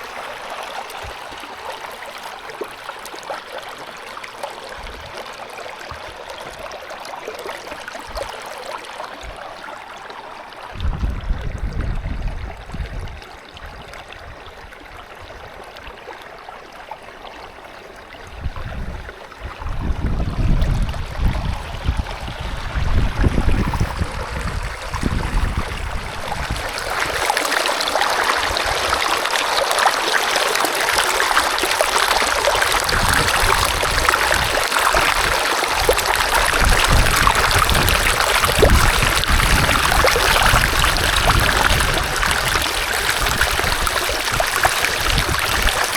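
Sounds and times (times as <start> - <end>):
running water rushing: 0.0 - 45.9
wind rumble on microphone: 4.8 - 5.2, 10.7 - 15.7, 18.1 - 27.3, 32.1 - 45.9.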